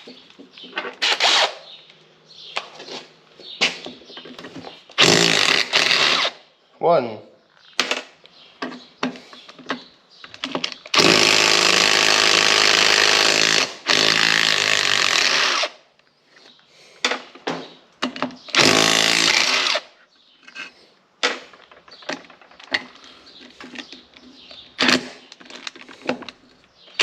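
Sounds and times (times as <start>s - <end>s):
impact wrench running: 5.0s - 6.4s, 11.0s - 15.7s, 18.6s - 19.8s.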